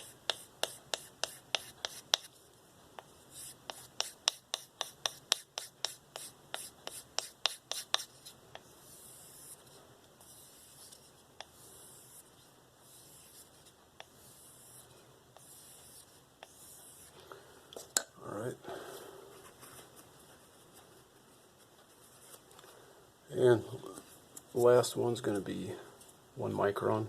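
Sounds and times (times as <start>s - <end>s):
knife stropping strokes: 3.3s - 17.2s.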